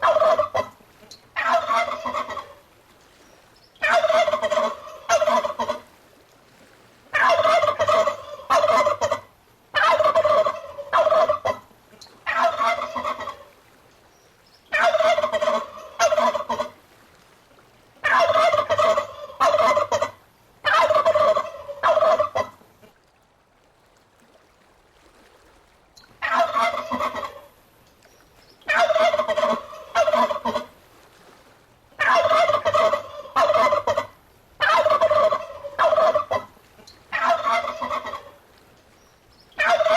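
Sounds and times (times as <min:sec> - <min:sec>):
turkey gobbling: 0:00.0 - 0:00.7, 0:01.4 - 0:02.6, 0:03.8 - 0:05.8, 0:07.1 - 0:13.5, 0:14.7 - 0:16.7, 0:18.0 - 0:22.6, 0:26.2 - 0:27.5, 0:28.7 - 0:30.7, 0:32.0 - 0:36.5, 0:37.1 - 0:38.4, 0:39.6 - 0:39.9.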